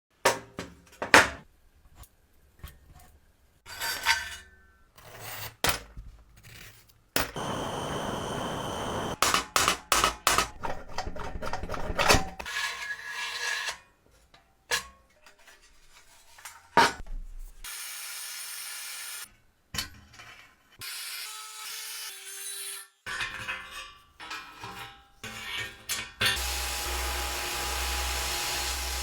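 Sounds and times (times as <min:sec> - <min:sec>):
scraping and rubbing: 0:10.5 - 0:13.6.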